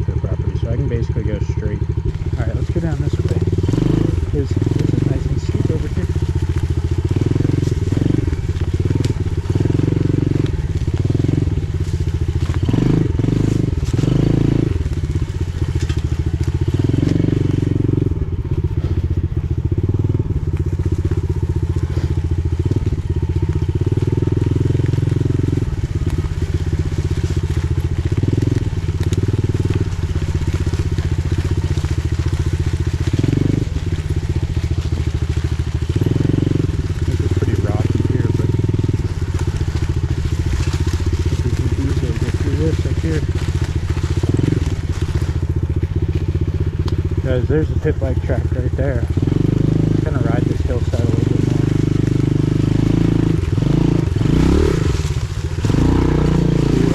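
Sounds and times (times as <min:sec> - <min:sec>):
motorbike engine revving: 0:00.0 - 0:56.9
sharp cracks: 0:00.6 - 0:56.9.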